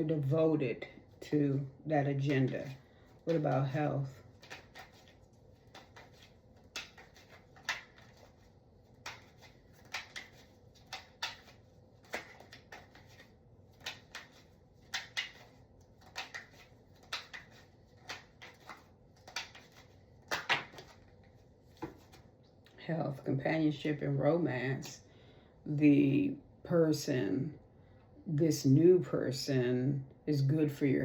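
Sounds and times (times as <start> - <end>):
cards snapping and tapping: 4.2 - 21.1.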